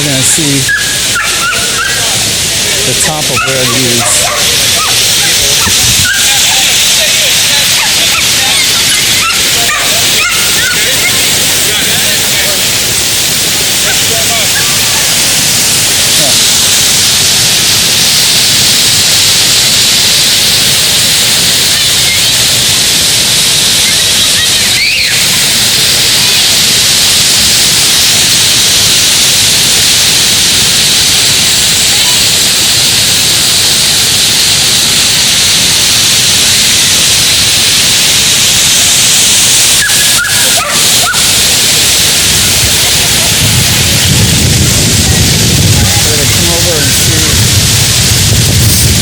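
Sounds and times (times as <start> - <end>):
waterfall rushing: 0.0 - 49.0
high-pitched yips and squeaks: 0.7 - 2.2, 3.3 - 6.7, 7.6 - 11.4, 23.8 - 25.6, 39.6 - 41.5.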